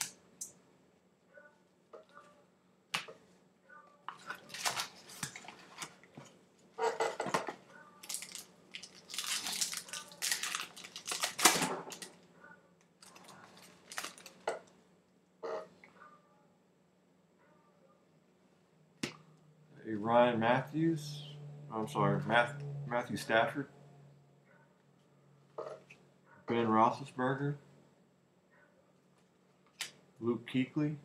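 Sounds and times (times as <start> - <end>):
wrapper tearing and crinkling: 4.2 - 6.0, 8.0 - 12.2, 13.0 - 14.5.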